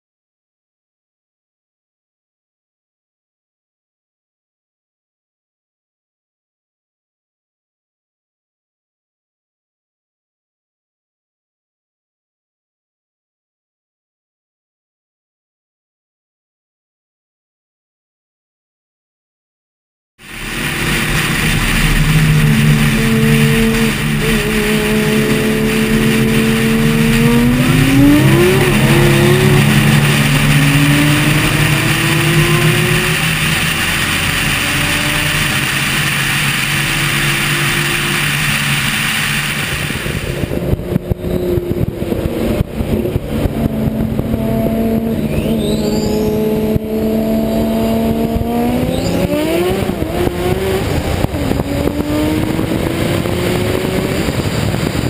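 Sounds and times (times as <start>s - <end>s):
racing car engines at full throttle: 20.2s - 55.0s
wind rushing on camera: 20.2s - 55.0s.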